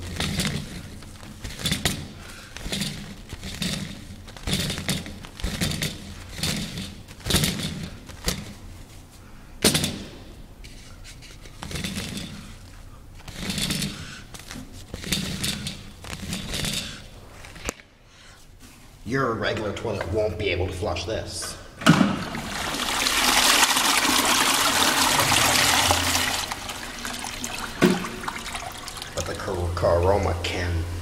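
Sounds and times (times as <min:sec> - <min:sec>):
toilet paper rustling: 0:22.3 - 0:29.4.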